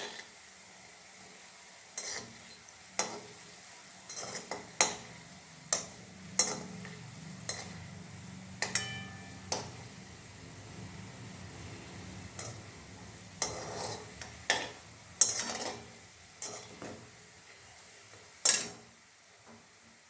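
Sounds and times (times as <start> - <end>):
faint sizzle of frying: 0.0 - 20.0
metal spoon scraping frying pan: 2.0 - 3.4, 4.1 - 10.1, 11.4 - 18.8.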